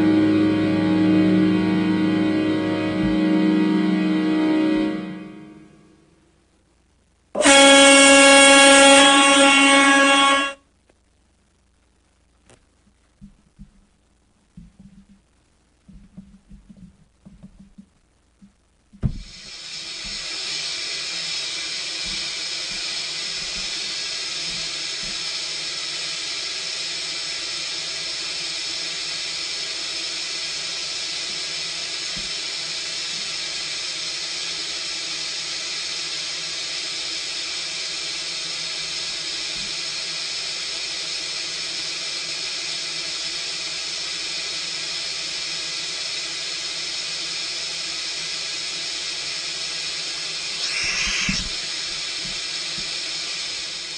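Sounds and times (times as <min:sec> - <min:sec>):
car wash water spray: 0:19.3 - 0:53.9.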